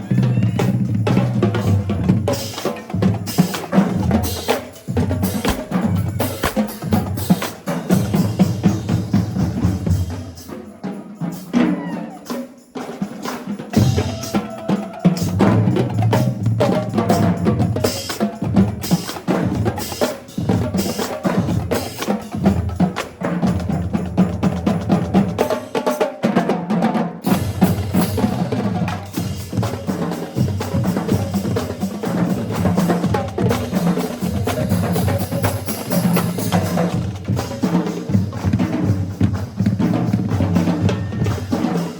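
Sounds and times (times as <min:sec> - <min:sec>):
snare drums: 0:00.0 - 0:41.9
bass drums: 0:04.0 - 0:09.8
drumsticks clicking: 0:05.4 - 0:06.8.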